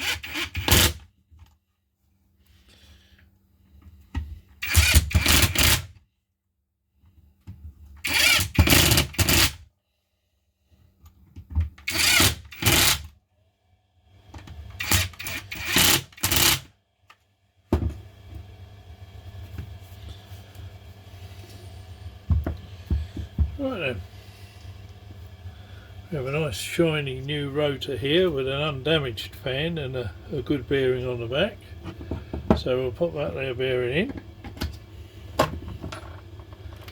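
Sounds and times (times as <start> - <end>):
cordless power driver running: 0.0 - 1.0, 4.6 - 5.9, 8.0 - 9.6, 11.8 - 13.1, 14.7 - 16.7.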